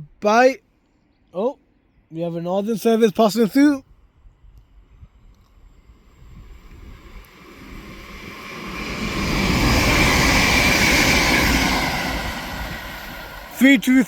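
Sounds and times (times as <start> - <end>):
train rushing and rumbling on rails: 4.2 - 14.0.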